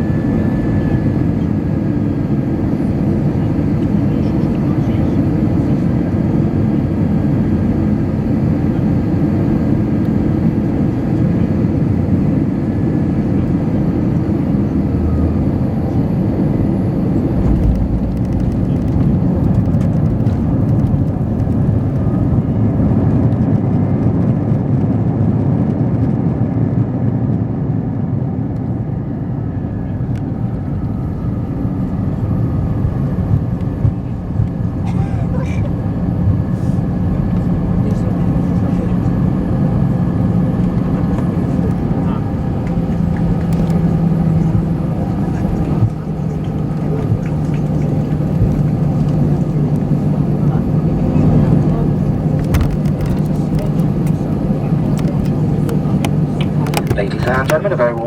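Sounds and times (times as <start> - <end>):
aircraft cabin engine rumble: 0.0 - 58.0
low thump: 17.4 - 21.0
clicks and rattles: 17.5 - 22.0, 52.4 - 57.6.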